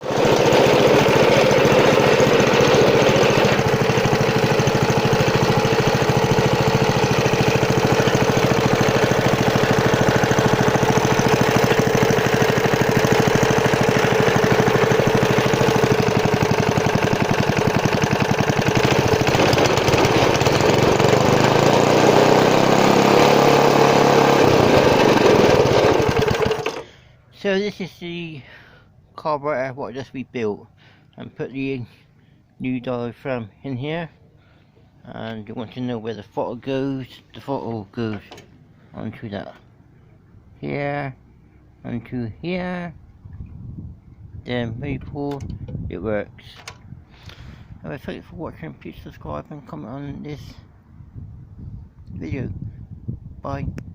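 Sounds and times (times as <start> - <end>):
petrol engine running: 0.0 - 26.9.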